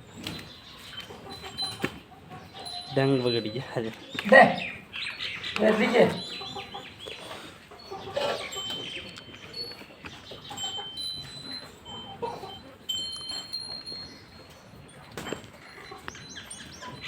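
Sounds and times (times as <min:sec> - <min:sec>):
birds chirping: 0:00.0 - 0:17.0
low farmyard background: 0:00.0 - 0:17.0.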